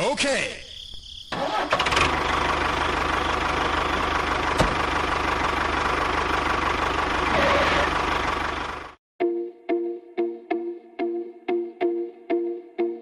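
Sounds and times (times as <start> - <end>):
engine idling: 1.4 - 9.0.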